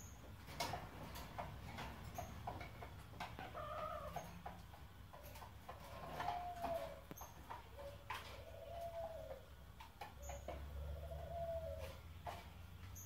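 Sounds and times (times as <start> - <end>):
hen clucking: 2.8 - 4.8, 5.8 - 12.4.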